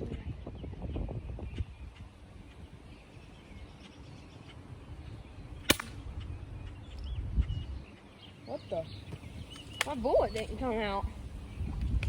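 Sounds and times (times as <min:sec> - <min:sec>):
wind rumble on microphone: 0:00.0 - 0:12.0
air rifle snap: 0:05.7 - 0:06.0.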